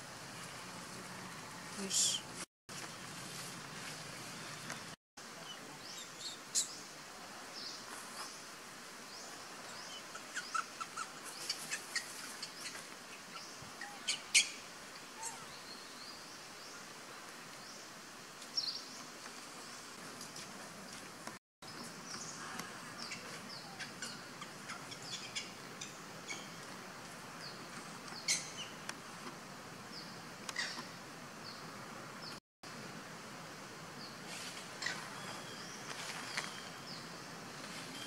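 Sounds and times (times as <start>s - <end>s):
background hiss: 0.0s - 38.0s.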